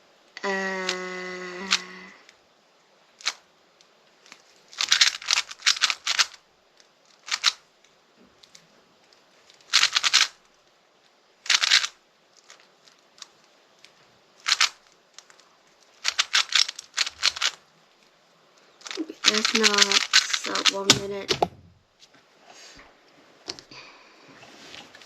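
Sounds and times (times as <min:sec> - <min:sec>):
puzzle cube layers clacking: 0:00.6 - 0:02.1, 0:03.2 - 0:03.4, 0:04.2 - 0:06.4, 0:07.1 - 0:07.6, 0:09.2 - 0:10.4, 0:11.4 - 0:13.6, 0:14.4 - 0:17.6, 0:18.8 - 0:21.7.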